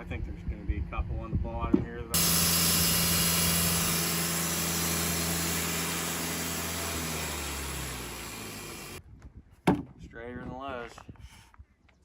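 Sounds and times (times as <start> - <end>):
engine running with hiss: 2.2 - 9.0.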